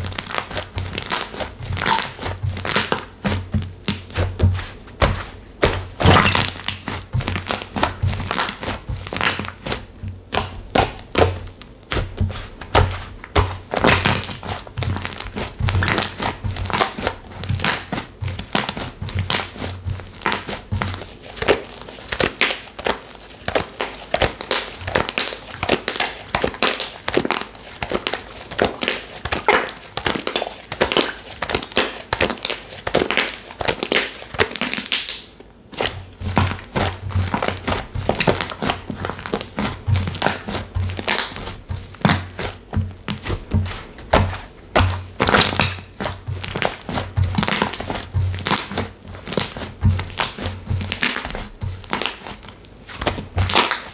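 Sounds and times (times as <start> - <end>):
slime squeezed by hand: 0.2 - 3.1.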